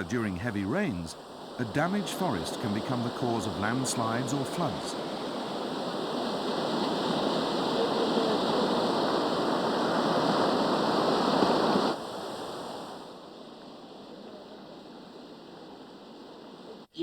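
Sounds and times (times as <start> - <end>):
rushing water: 0.0 - 13.1.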